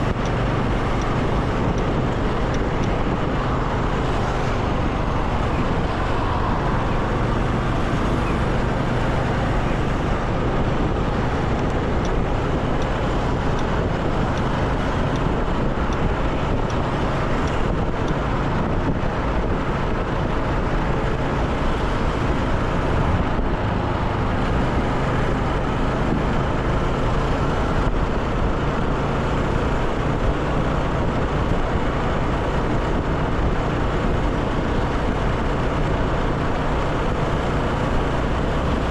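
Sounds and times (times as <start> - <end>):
motorcycle engine humming: 0.0 - 38.9
road and wind noise: 0.0 - 38.9.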